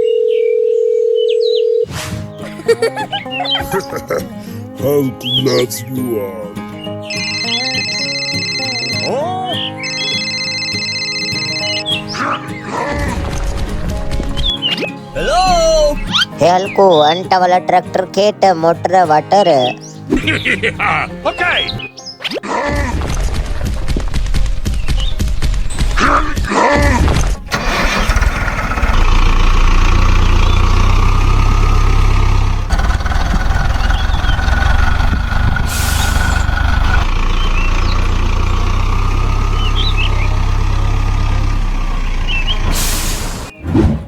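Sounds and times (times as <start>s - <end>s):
small engine running: 27.5s - 43.5s
short bursts of hiss: 42.7s - 43.5s.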